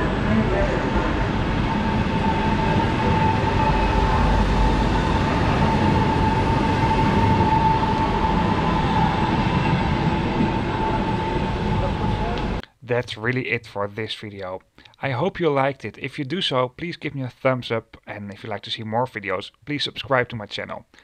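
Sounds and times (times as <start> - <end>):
train wheels rumbling: 0.0 - 12.6
constant high tone: 0.0 - 14.4.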